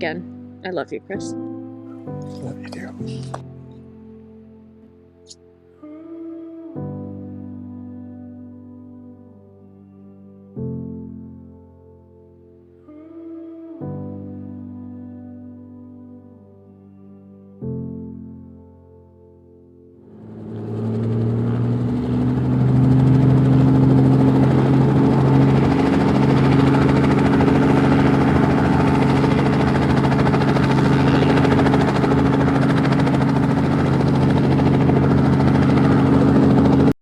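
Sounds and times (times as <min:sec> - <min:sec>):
helicopter engine and rotor drone: 0:20.1 - 0:36.9.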